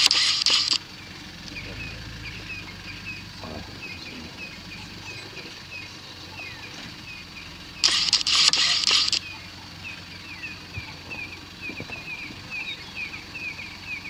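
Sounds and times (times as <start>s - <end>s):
burst of rapid clicking and hiss: 0.0s - 0.8s, 7.8s - 9.2s
bird chirping: 0.0s - 14.0s
low steady rumble: 0.0s - 14.0s.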